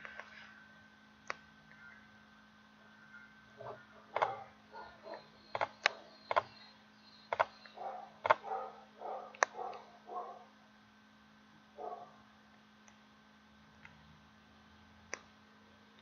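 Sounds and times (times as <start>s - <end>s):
mouse clicks: 5.1s - 6.6s, 7.3s - 8.4s, 9.3s - 9.8s, 15.1s - 15.3s.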